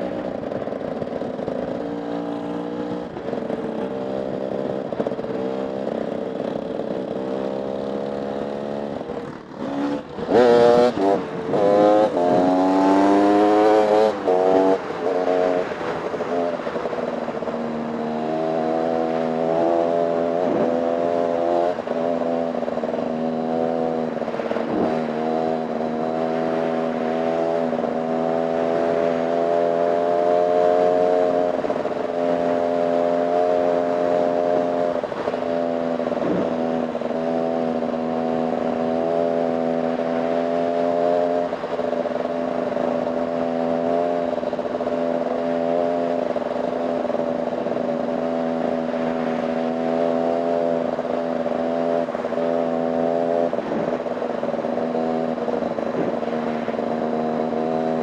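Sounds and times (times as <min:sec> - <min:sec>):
dirt bike engine revving: 0:09.6 - 0:16.4.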